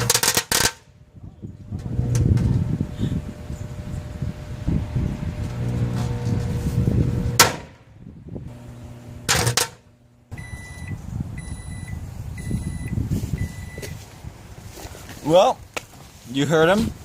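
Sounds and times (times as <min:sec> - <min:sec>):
microwave oven humming: 0:01.7 - 0:07.5, 0:08.3 - 0:13.0
high-pitched microwave beeps: 0:10.3 - 0:14.0.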